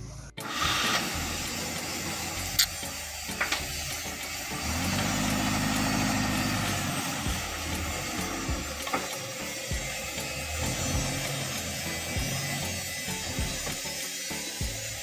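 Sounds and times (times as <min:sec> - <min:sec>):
petrol engine idling: 0:00.4 - 0:13.6
deep steady engine tone: 0:04.0 - 0:08.8.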